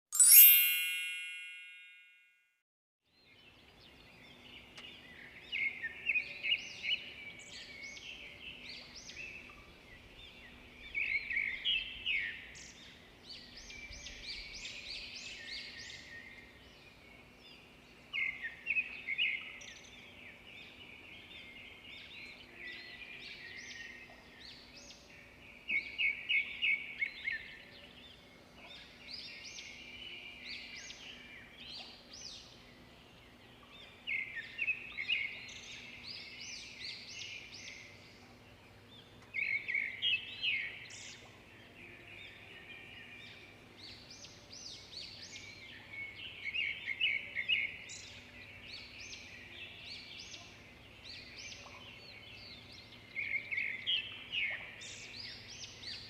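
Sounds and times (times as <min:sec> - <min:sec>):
bell-like chime: 0:00.1 - 0:02.6.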